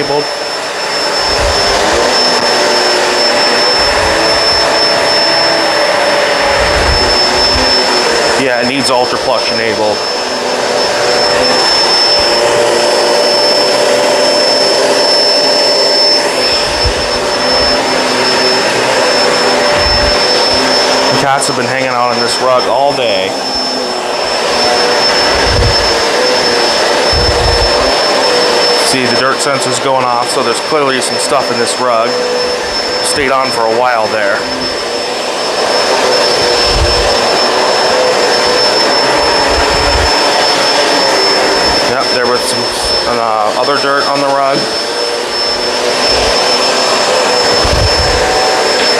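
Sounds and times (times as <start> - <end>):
upright vacuum running: 0.0 - 48.9.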